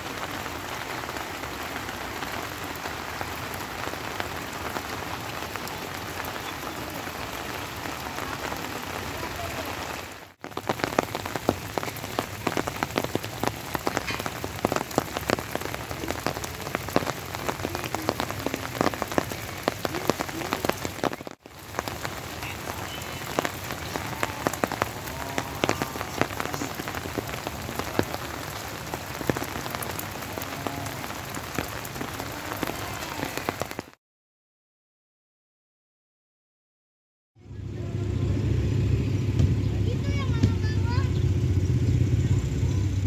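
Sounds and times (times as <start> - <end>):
rain pattering on a surface: 0.0 - 34.0, 37.6 - 43.0.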